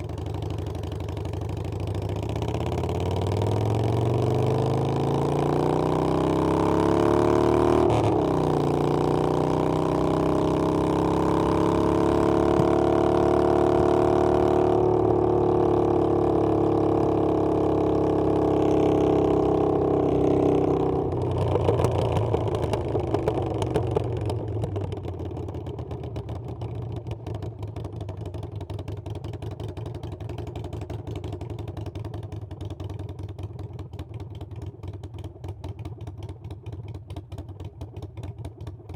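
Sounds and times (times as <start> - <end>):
motorcycle engine accelerating: 0.0 - 27.1.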